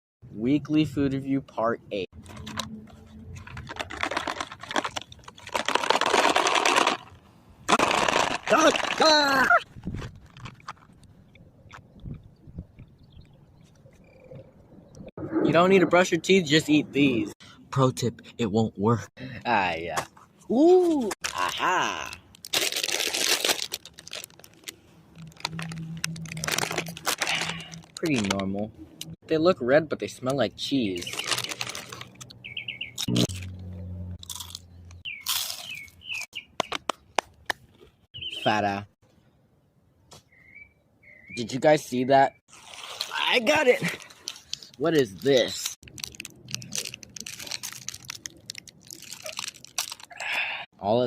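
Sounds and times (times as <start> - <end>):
snack packaging crinkling: 3.3 - 11.1, 21.2 - 28.5, 31.0 - 33.5, 42.5 - 50.4.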